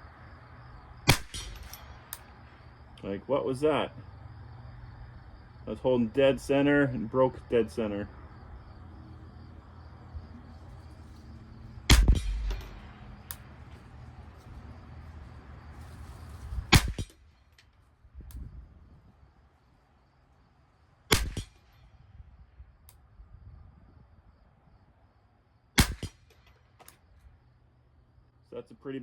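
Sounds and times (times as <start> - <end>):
rifle shots: 1.1 - 2.6, 11.8 - 13.5, 16.7 - 17.2, 21.1 - 21.8, 25.8 - 26.6.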